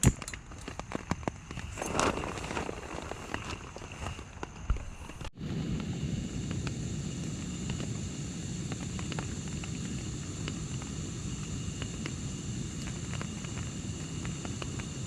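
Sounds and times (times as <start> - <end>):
heavy rain on a tarp: 0.8 - 4.5.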